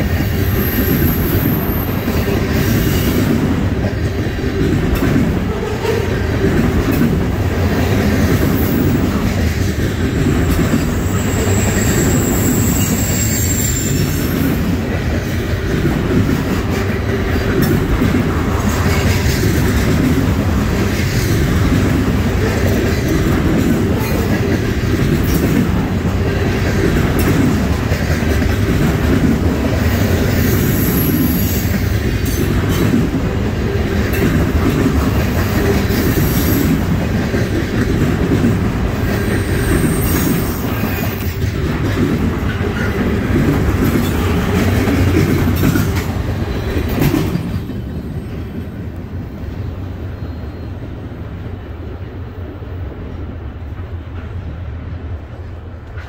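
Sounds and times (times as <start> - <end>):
train wheel squeals: 0.0 - 3.3, 10.0 - 14.8, 29.9 - 32.9, 35.3 - 36.9, 39.0 - 41.6, 43.8 - 48.8, 49.4 - 51.2
freight train rumbling past: 0.0 - 56.0.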